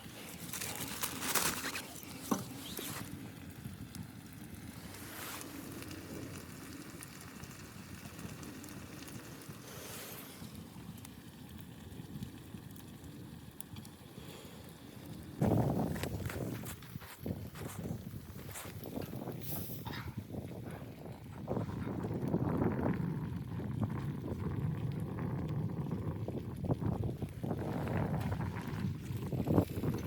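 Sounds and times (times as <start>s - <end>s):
wind blowing: 15.0s - 30.0s.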